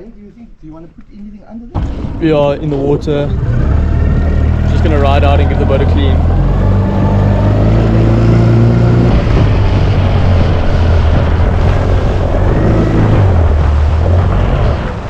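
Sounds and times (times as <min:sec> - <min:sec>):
rushing wind and water: 0:06.2 - 0:15.0.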